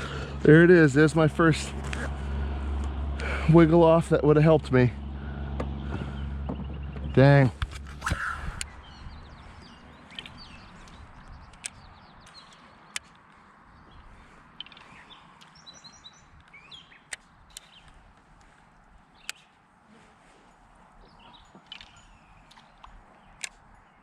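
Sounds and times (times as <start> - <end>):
birds chirping and singing: 5.2 - 19.6, 20.6 - 24.0.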